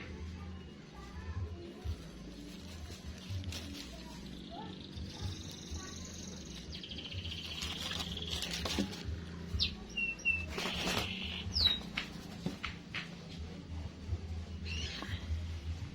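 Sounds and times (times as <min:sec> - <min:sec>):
low steady hum: 0:00.0 - 0:15.9
young doves cheeping: 0:09.6 - 0:12.0.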